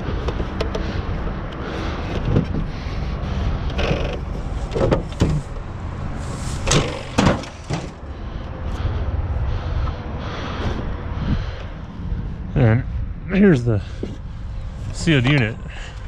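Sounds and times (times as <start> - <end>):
junk knocking and scraping: 0.0 - 5.7, 6.5 - 8.1
low rumble: 0.9 - 16.0.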